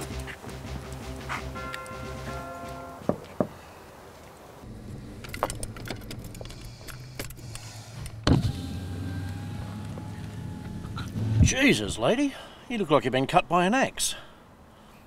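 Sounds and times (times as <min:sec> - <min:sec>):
car engine idling: 0:04.7 - 0:11.9.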